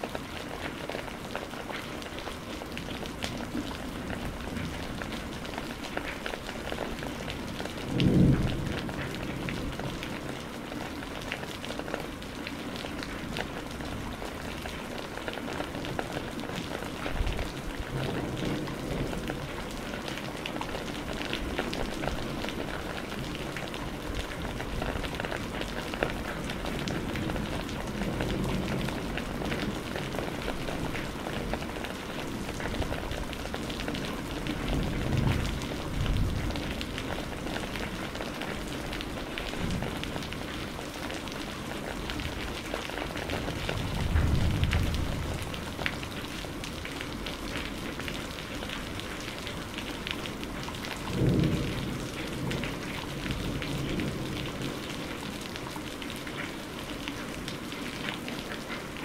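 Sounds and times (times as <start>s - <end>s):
steady rain: 0.0s - 59.0s
low thunder rumbling: 6.6s - 10.6s, 41.8s - 47.2s, 50.8s - 54.9s.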